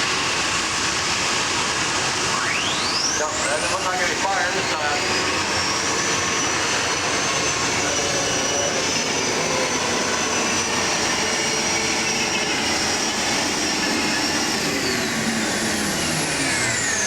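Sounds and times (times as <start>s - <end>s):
tractor engine whining: 0.0s - 17.0s.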